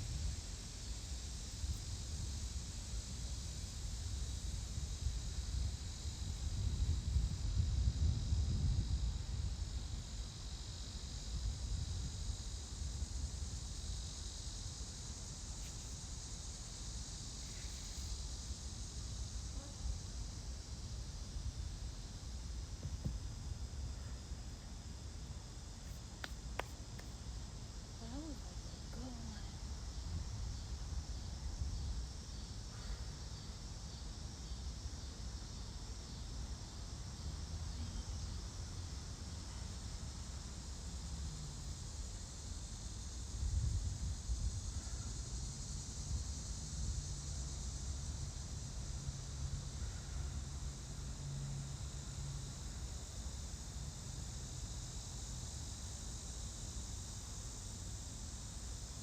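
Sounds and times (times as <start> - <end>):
insects chirring: 0.0 - 59.0
wind rumble on microphone: 1.5 - 13.6, 43.1 - 45.4.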